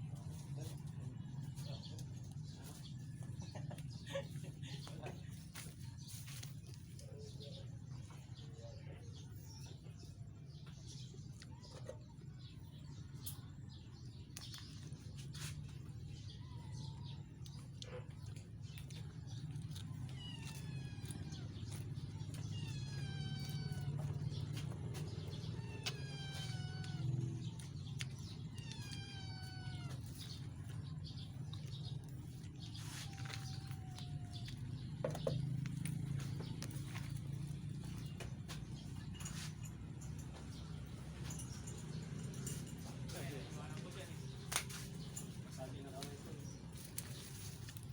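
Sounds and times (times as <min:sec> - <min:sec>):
animal calling: 0:19.2 - 0:38.2.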